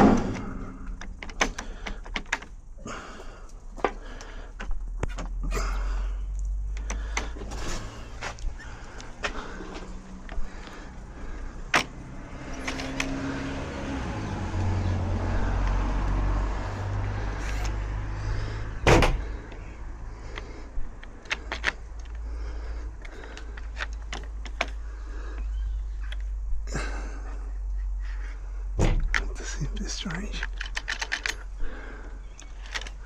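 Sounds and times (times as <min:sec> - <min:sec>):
metallic clicks of door lock: 0:00.0 - 0:02.6, 0:20.4 - 0:22.2, 0:30.4 - 0:31.5.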